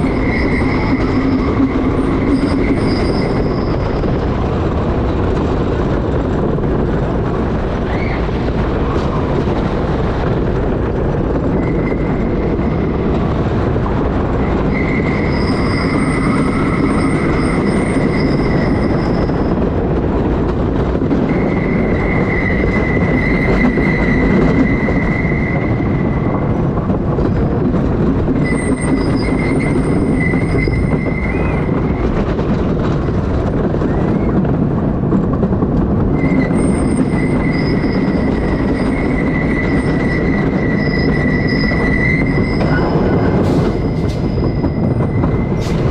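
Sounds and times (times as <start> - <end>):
high-pitched wheel squeal: 0.0 - 4.5, 7.8 - 9.2, 11.5 - 13.6, 14.3 - 19.8, 21.2 - 26.5, 28.4 - 32.3, 36.1 - 45.9
roller coaster rumble and rattle: 0.0 - 45.9.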